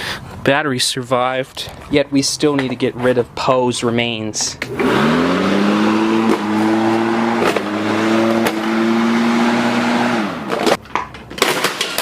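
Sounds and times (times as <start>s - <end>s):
lawnmower engine running: 4.7s - 10.8s.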